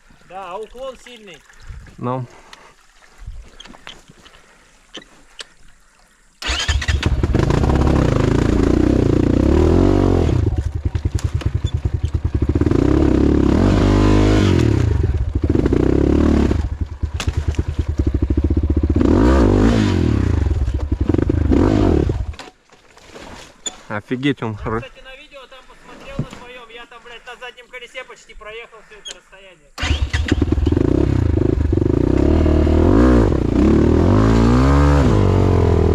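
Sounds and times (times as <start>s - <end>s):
motorcycle engine revving: 6.4s - 22.4s, 29.8s - 35.9s.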